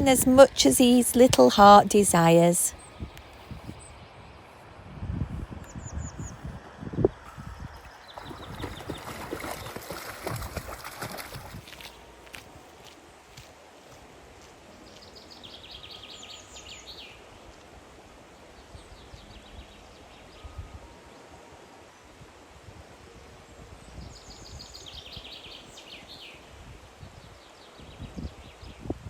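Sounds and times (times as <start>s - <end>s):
low background noise: 0.0s - 5.0s, 6.8s - 29.0s
songbird singing: 7.3s - 12.8s, 14.7s - 21.3s, 23.4s - 26.6s.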